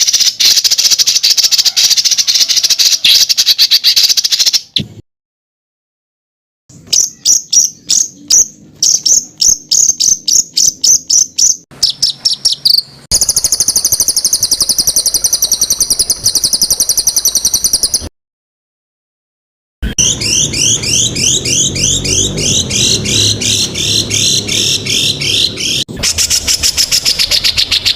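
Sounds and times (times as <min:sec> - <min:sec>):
fast harsh bird trill: 0:00.0 - 0:04.8, 0:06.8 - 0:18.1, 0:19.8 - 0:27.9
songbird chip notes: 0:06.7 - 0:18.1.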